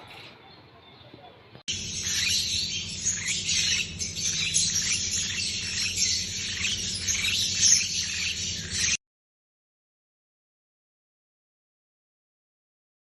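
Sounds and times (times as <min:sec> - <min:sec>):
flock of lovebirds chattering: 0:00.0 - 0:09.0.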